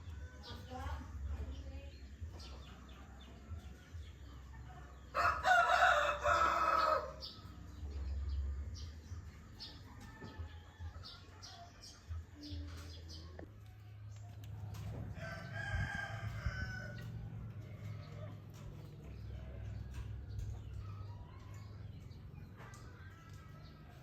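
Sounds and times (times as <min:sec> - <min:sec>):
small birds chirping: 0:00.0 - 0:24.0
rooster crowing: 0:05.1 - 0:07.3, 0:15.1 - 0:17.2
low steady rumble: 0:14.4 - 0:22.6.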